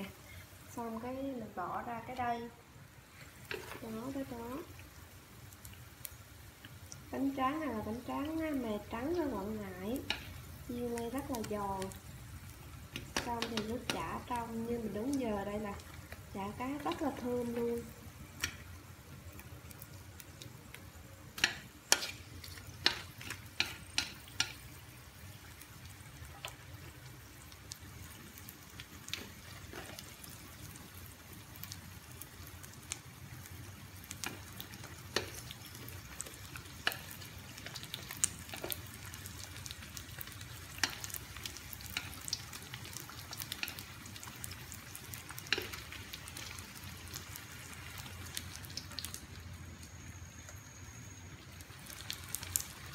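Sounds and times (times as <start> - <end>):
food sizzling in oil: 0.0 - 52.9
sharp clicks and pops: 12.9 - 14.0.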